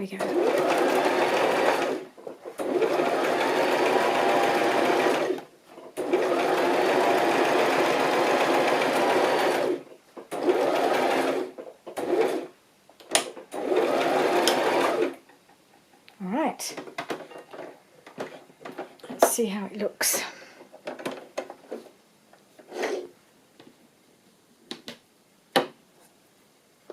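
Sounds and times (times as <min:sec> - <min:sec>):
electric sewing machine stitching: 0:00.2 - 0:05.4, 0:06.0 - 0:12.5, 0:13.5 - 0:15.2.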